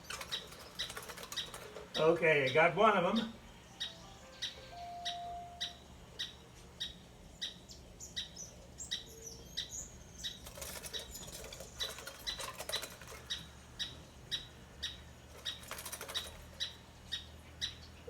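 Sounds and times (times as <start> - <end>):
bird wings flapping: 0.0 - 2.0, 10.4 - 13.6, 15.3 - 16.8
bird chirping: 0.0 - 18.0.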